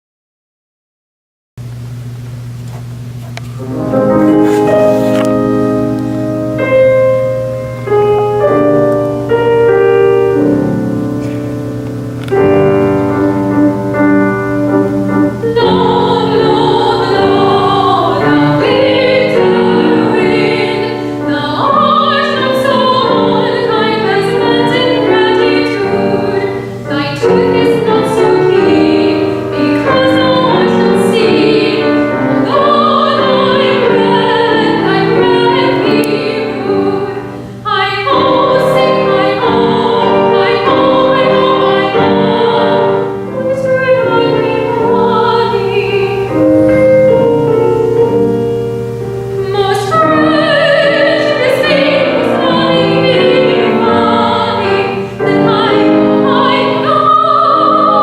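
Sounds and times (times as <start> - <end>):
piano accompaniment: 1.6 - 58.0
soprano singing operatically: 15.4 - 47.3, 48.8 - 58.0.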